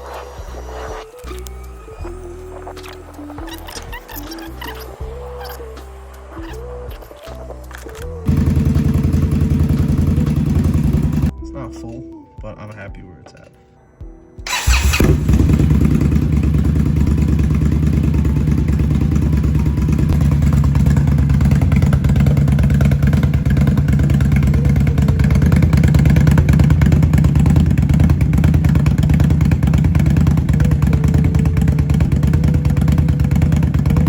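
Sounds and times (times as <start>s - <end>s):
motorcycle engine idling: 8.2s - 11.3s, 14.5s - 34.0s.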